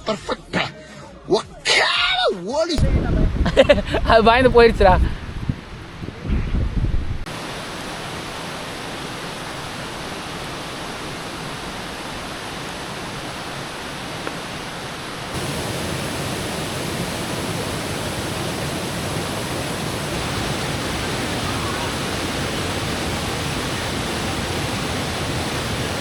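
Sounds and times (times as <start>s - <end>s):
water rushing: 2.8s - 6.3s, 7.2s - 26.0s
low rumbling buffets: 2.8s - 7.3s.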